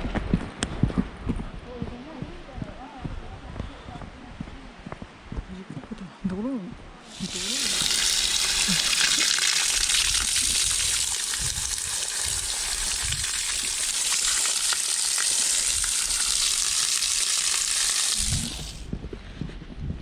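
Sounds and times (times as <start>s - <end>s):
waterfall rushing hiss: 7.1s - 18.9s.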